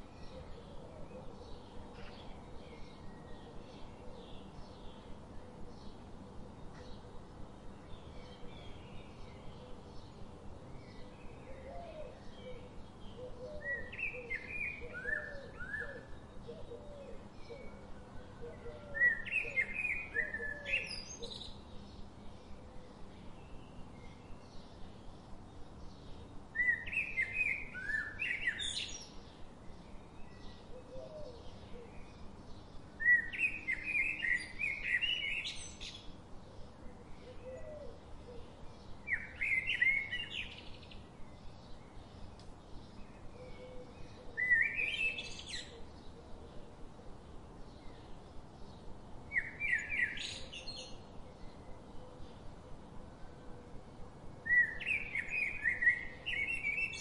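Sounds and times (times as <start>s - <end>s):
small birds chirping: 18.8s - 53.0s, 54.4s - 57.0s.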